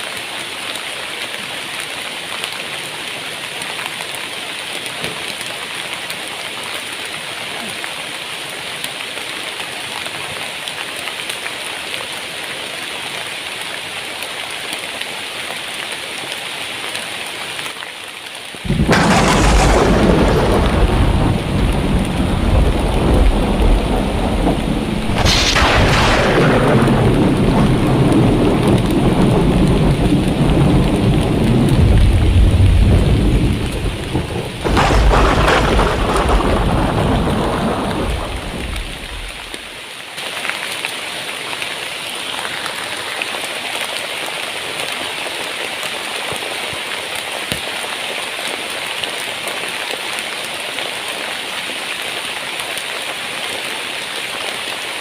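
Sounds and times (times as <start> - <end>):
heavy rain: 0.0 - 55.0
thunder cracking and rumbling: 18.6 - 39.7.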